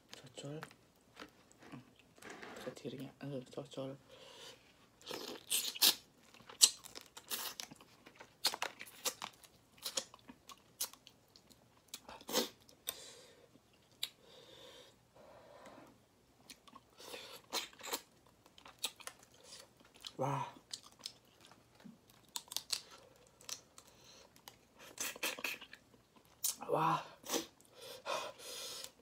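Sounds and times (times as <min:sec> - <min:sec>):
crunching shrimp shells: 0:05.0 - 0:11.5, 0:17.4 - 0:24.6.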